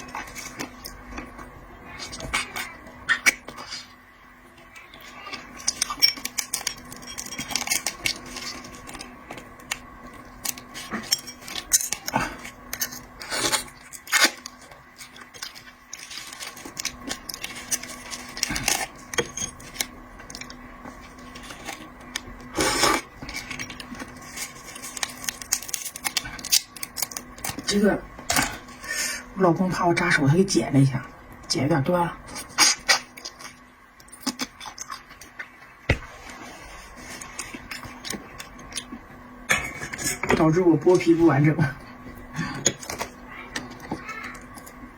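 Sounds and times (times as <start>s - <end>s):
faint steady hum: 0.0s - 44.9s
shellfish shells cracking: 5.3s - 20.6s, 23.2s - 27.7s.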